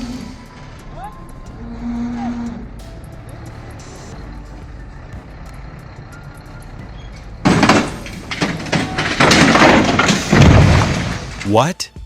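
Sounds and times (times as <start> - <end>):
heavy machinery running: 0.0 - 11.4
loud bangs and clatter: 2.6 - 11.5
loud crack: 7.4 - 11.5.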